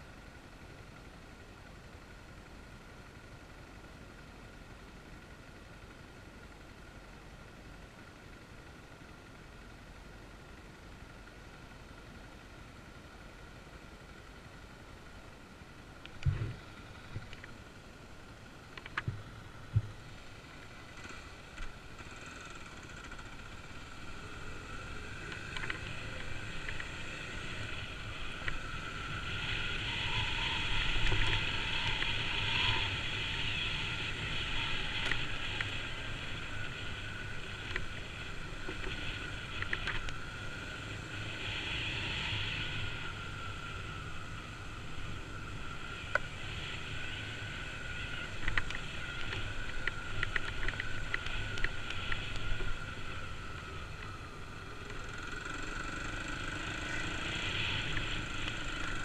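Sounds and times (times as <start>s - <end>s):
dirt bike engine running: 14.1s - 59.0s.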